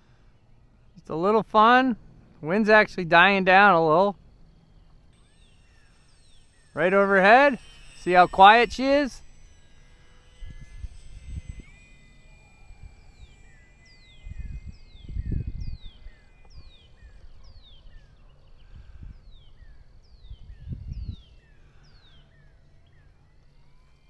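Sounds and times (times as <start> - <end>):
wind buffeting microphone: 14.2 - 16.7, 18.7 - 21.3.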